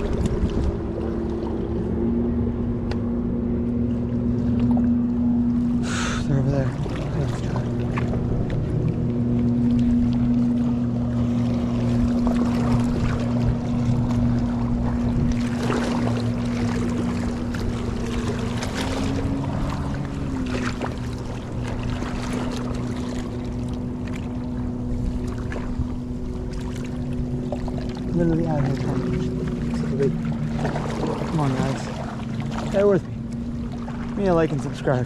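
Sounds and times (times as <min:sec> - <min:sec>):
wind on the microphone: 0:00.0 - 0:01.0, 0:12.0 - 0:16.1
boat engine running: 0:00.0 - 0:35.0.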